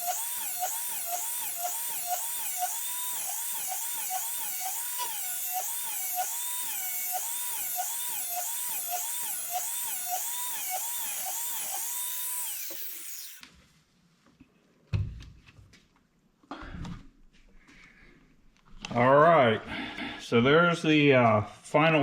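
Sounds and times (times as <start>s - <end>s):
electric grinder grinding steel: 0.0s - 13.4s.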